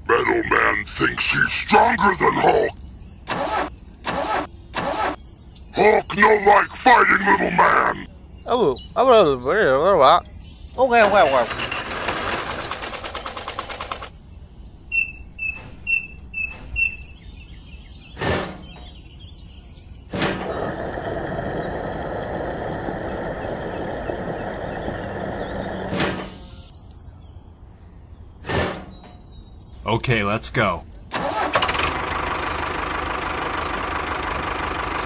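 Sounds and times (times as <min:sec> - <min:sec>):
short beeps: 0:14.9 - 0:17.2
thump: 0:18.2 - 0:18.9, 0:28.4 - 0:29.1
fuel flowing hiss and hum: 0:20.1 - 0:26.8.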